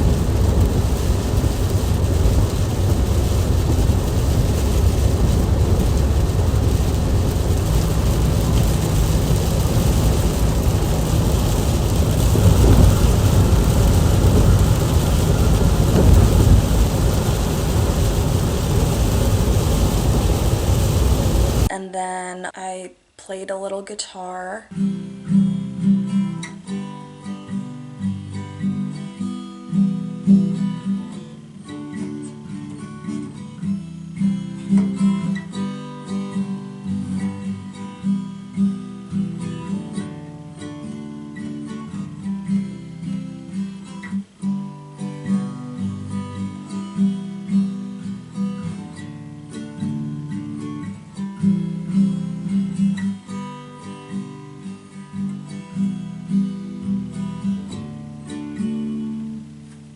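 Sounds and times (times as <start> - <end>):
acoustic guitar strumming: 24.7 - 59.5.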